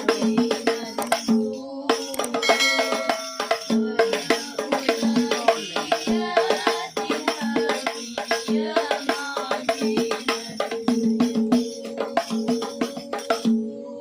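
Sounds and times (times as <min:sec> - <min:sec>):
tambourine jingles: 0:00.0 - 0:13.5
frame drums playing fast rhythms: 0:00.0 - 0:13.6.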